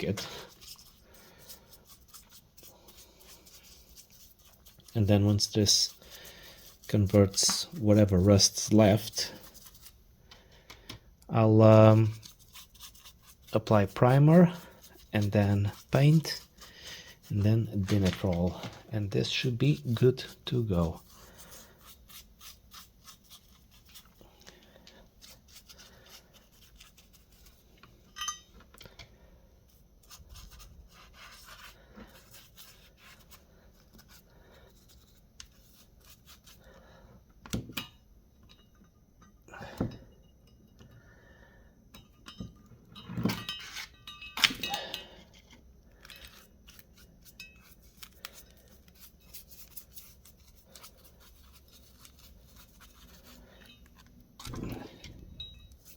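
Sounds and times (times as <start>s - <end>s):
brush scrubbing metal: 0.0s - 10.0s, 11.4s - 24.2s, 25.2s - 27.7s, 30.0s - 36.6s, 46.9s - 55.0s.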